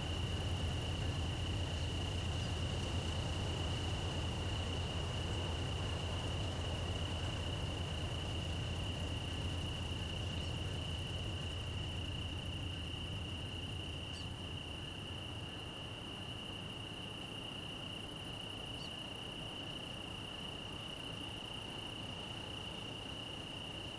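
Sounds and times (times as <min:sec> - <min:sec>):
train rumbling: 0:00.0 - 0:15.6
crickets trilling: 0:00.0 - 0:23.9.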